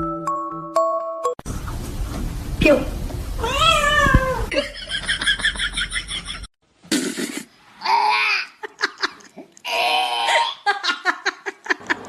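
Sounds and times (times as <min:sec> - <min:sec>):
cat meowing: 0:03.4 - 0:04.5.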